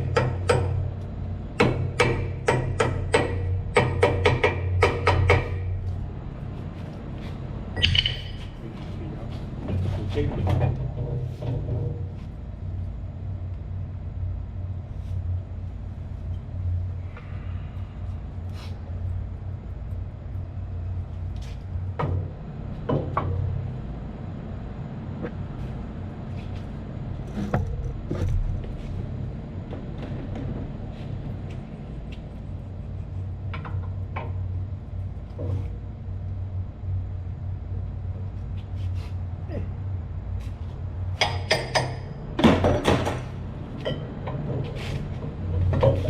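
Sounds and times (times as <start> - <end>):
machinery humming: 0.0 - 46.0
metallic tool clicks and knocks: 7.8 - 8.5.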